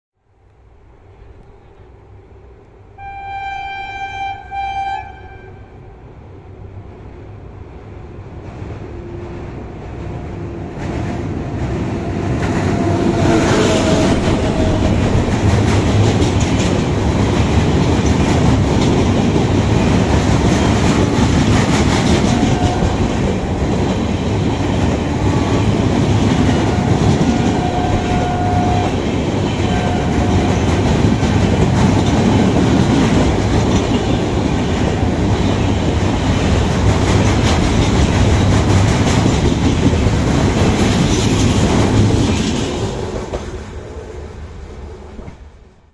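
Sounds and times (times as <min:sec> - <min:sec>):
train horn blasts: 0:03.0 - 0:06.0, 0:11.9 - 0:15.4, 0:22.1 - 0:23.2, 0:26.4 - 0:30.9
train coaches clattering past: 0:07.3 - 0:45.4.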